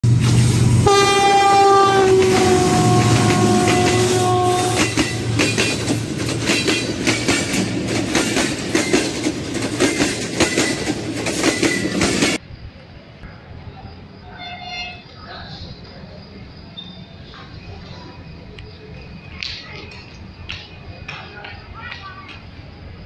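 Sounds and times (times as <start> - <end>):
wheels clickety-clack over rails: 0.0 - 12.4, 17.4 - 23.0
diesel locomotive rumble: 0.0 - 23.0
train horn blast: 0.8 - 5.6.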